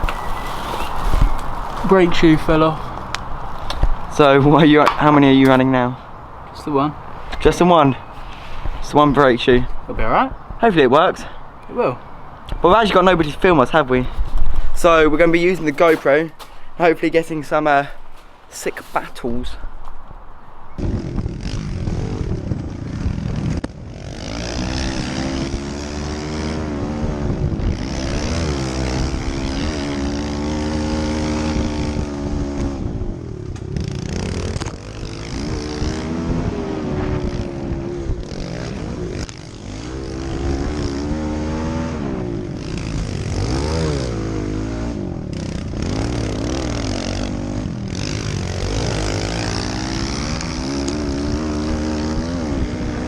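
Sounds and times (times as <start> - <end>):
small motorbike engines revving: 0.0 - 5.9, 20.8 - 53.0
wind hiss: 0.0 - 53.0.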